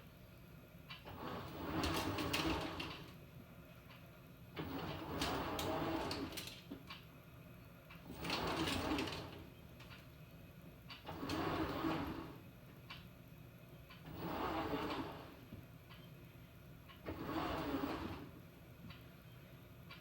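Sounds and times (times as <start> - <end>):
washing machine churning: 1.1 - 3.1, 4.6 - 6.5, 8.0 - 9.5, 11.0 - 12.4, 14.0 - 15.5, 17.0 - 18.4.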